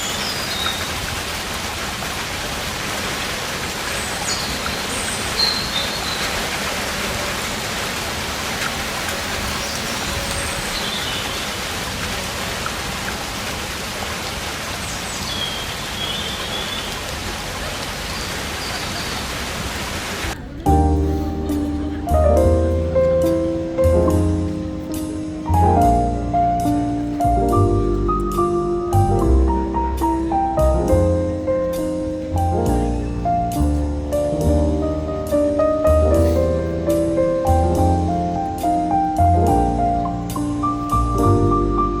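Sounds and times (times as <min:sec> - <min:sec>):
steady rain falling: 0:00.0 - 0:42.0
short high sliding chirps: 0:08.2 - 0:11.4.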